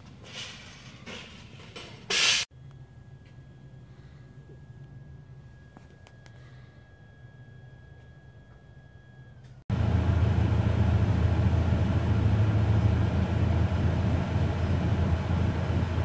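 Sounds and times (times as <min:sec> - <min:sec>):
car engine idling: 0:09.7 - 0:16.0.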